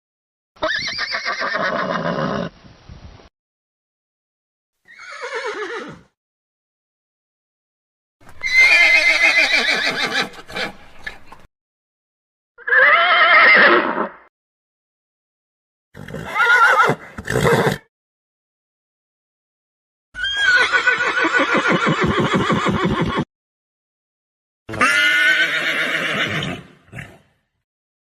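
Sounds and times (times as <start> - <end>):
horse whinnying: 0.6 - 2.5, 4.9 - 6.1, 8.3 - 10.8, 12.6 - 14.3, 16.0 - 17.9, 20.2 - 23.3, 24.7 - 27.2.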